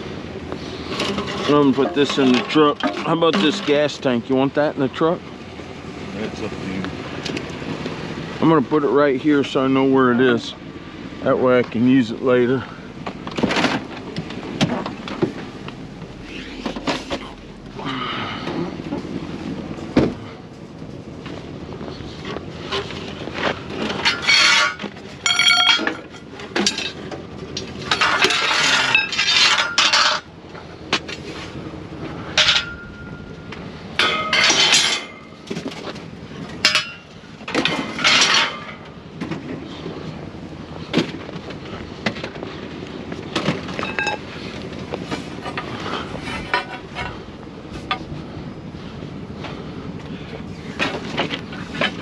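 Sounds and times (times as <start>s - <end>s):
scrap clanking in truck bed: 0.6s - 4.2s, 12.6s - 21.4s, 22.1s - 40.0s, 43.3s - 48.2s, 50.5s - 52.0s.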